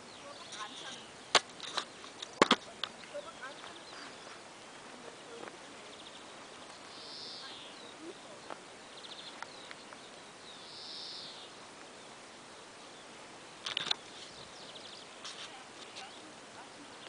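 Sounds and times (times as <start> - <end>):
faint bird chirps: 0.0 - 17.0
songbird rattling trill: 0.0 - 17.0
steady outdoor hiss: 0.0 - 17.0
songbird buzzing note: 3.0 - 13.2.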